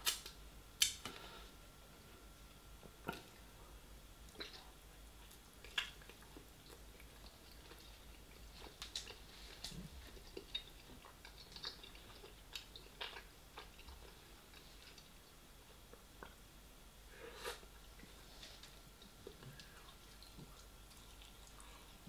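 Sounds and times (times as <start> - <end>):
chewing and gnawing meat: 5.2 - 15.2.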